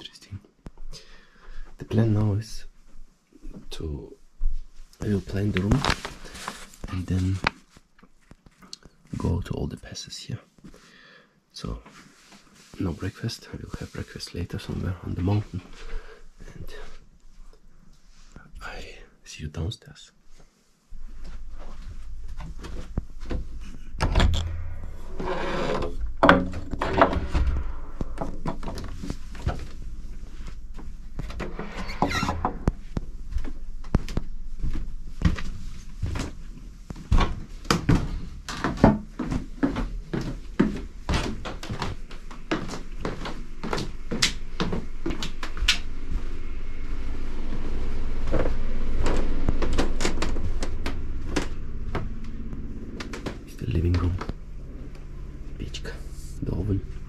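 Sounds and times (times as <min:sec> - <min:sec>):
low handling rumble: 0:20.8 - 0:57.0
wood creaking: 0:21.4 - 0:46.8, 0:47.4 - 0:56.0
footsteps on wooden floor: 0:31.6 - 0:45.6
wooden knocks and clunks: 0:37.2 - 0:39.2.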